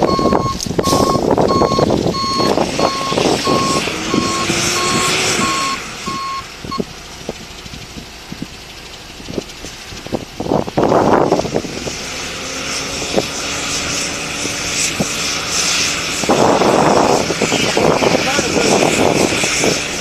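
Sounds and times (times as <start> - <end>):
vehicle reversing alarm beeping: 0.0 - 6.9.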